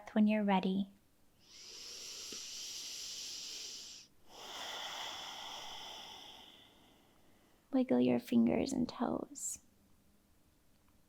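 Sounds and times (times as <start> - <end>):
deep breaths close up: 1.4 - 7.7.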